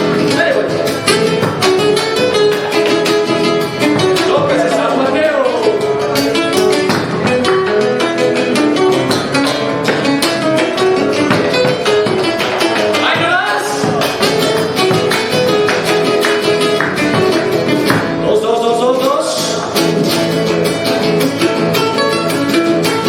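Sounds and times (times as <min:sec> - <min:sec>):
drum beat: 0:00.0 - 0:05.0, 0:06.4 - 0:08.1, 0:08.8 - 0:18.2
lead guitar melody: 0:00.0 - 0:18.3, 0:19.3 - 0:23.0
strummed rhythm guitar: 0:00.0 - 0:23.0.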